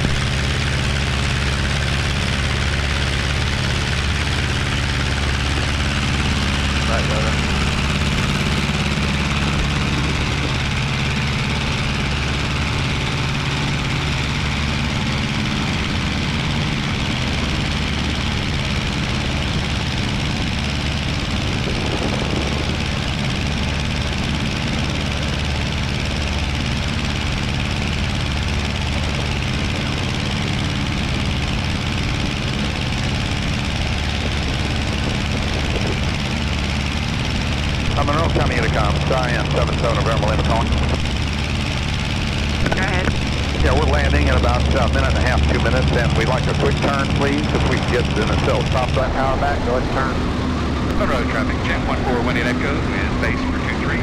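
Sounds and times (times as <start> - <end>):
small plane engine droning: 0.0 - 54.0.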